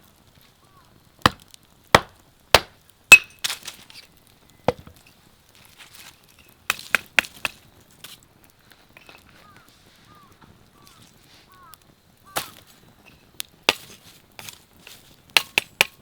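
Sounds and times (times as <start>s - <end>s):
sharp chopping strikes: 2.0s - 3.4s, 15.4s - 16.0s.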